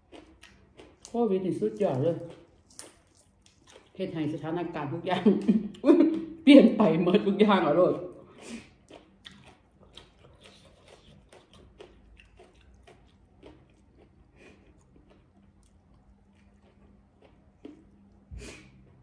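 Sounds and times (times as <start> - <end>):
person chewing food: 0.0 - 4.0, 8.2 - 19.0.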